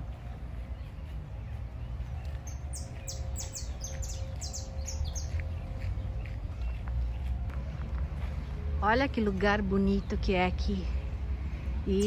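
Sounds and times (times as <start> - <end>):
bird singing high chirps: 0.7 - 7.2.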